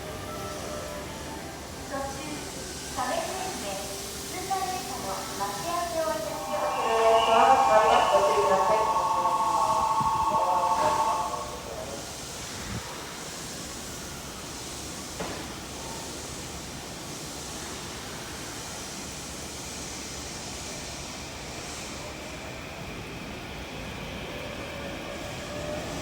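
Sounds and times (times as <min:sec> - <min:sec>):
station platform hiss and rumble: 0:00.0 - 0:26.0.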